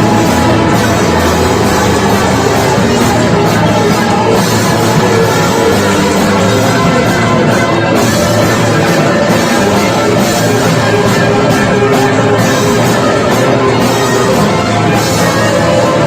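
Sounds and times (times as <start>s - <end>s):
band playing noise rock: 0.0s - 16.0s.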